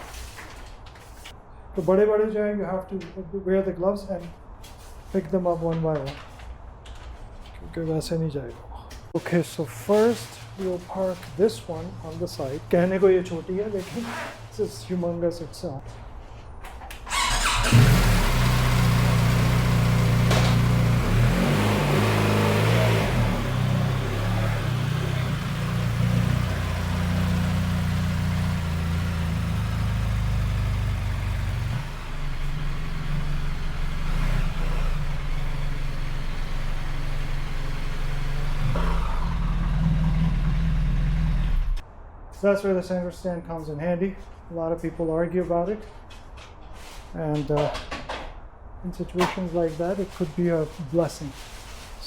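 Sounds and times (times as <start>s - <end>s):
large motorcycle engine idling: 22.9s - 41.8s.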